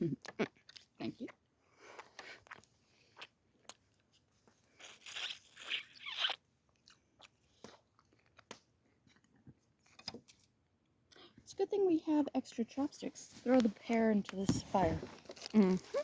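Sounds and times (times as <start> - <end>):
person chewing crunchy food: 0.1 - 9.5.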